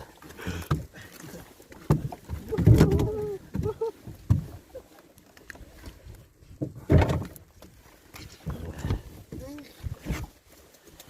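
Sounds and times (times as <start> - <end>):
knocks against a small boat: 1.8 - 4.5, 6.6 - 7.4.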